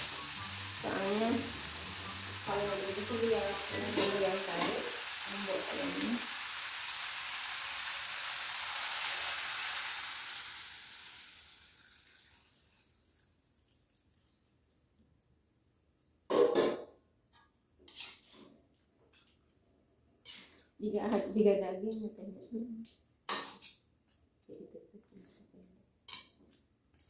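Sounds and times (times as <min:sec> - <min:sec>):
chicken sizzling in a wok: 0:00.0 - 0:13.7, 0:20.2 - 0:20.7
metal spatula scraping a wok: 0:02.6 - 0:05.1, 0:17.8 - 0:18.5, 0:20.2 - 0:20.7.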